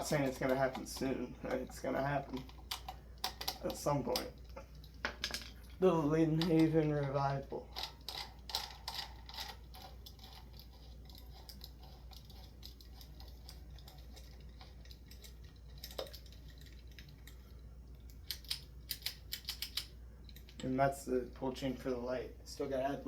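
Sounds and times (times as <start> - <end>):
handling clicks and knocks: 0.0 - 10.6
faint low hum: 0.0 - 23.0.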